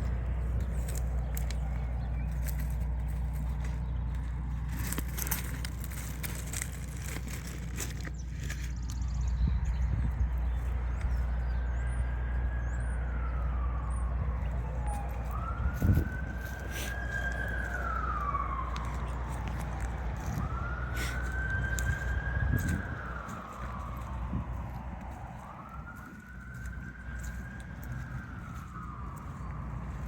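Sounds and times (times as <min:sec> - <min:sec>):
emergency siren wailing: 0:00.0 - 0:30.0.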